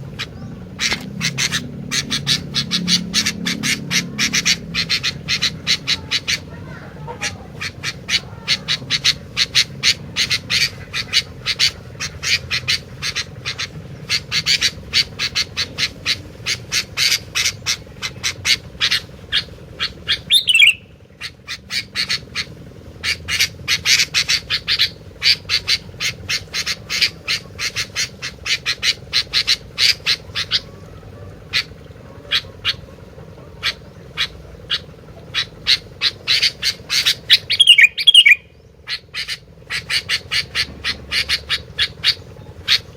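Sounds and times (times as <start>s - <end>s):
songbird singing high notes: 20.1s - 20.9s, 36.4s - 38.6s.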